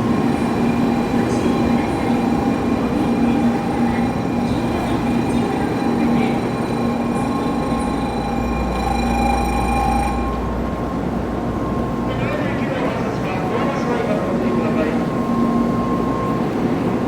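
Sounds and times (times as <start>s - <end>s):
high electric whine: 0.0s - 11.4s
train rumble: 0.0s - 17.0s.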